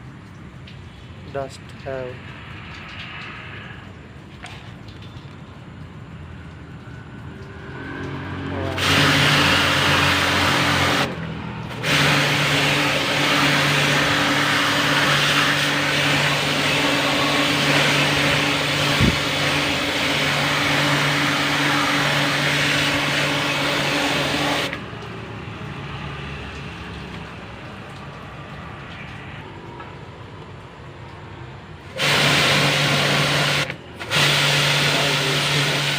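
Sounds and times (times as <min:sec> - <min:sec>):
water jet hissing: 0:00.0 - 0:05.7, 0:06.9 - 0:30.2, 0:31.1 - 0:35.9
pressure washer pump humming: 0:00.0 - 0:35.9.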